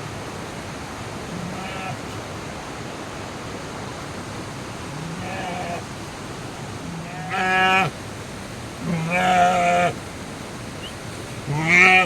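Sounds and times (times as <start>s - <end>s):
sheep bleating: 1.3s - 2.2s, 4.9s - 5.9s, 6.8s - 8.0s, 8.8s - 10.0s, 11.4s - 12.0s.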